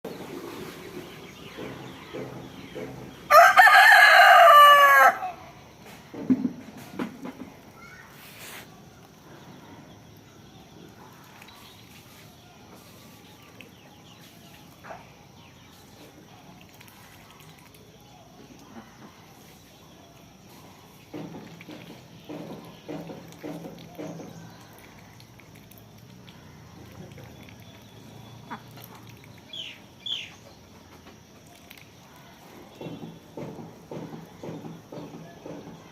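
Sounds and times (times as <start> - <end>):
rooster crowing: 3.3 - 5.4.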